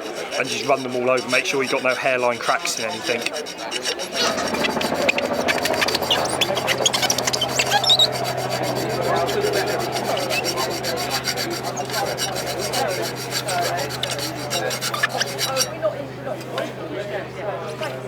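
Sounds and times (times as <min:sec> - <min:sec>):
hand file rasping on metal: 0:00.0 - 0:17.3.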